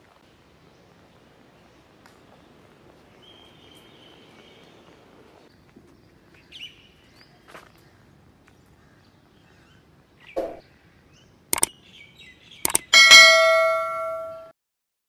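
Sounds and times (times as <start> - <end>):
mouse-click sound effects: 12.6 - 12.9.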